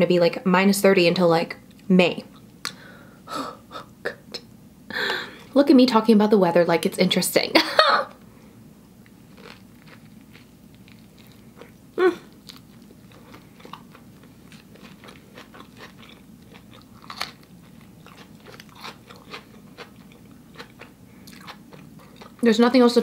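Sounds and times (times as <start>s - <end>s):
chewing with soft crunching: 9.0s - 22.4s.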